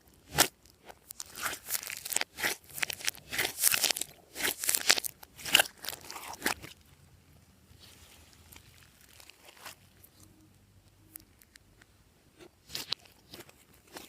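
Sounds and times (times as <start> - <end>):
slime crackling and squishing: 0.0 - 7.0, 7.6 - 10.3, 12.4 - 14.0.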